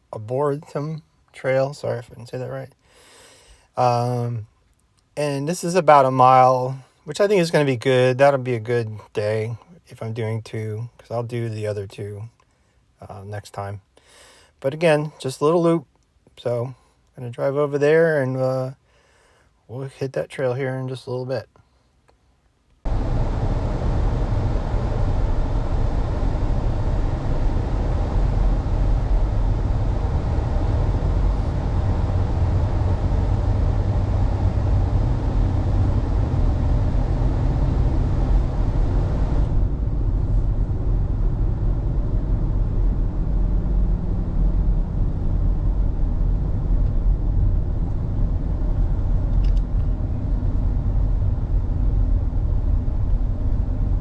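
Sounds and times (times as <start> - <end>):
car road and engine rumble: 22.8 - 54.0.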